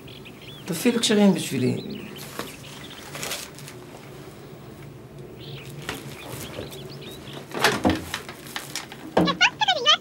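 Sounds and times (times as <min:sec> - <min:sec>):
faint bird chirps: 0:00.0 - 0:03.2
loud clatter of knocks: 0:07.5 - 0:09.5.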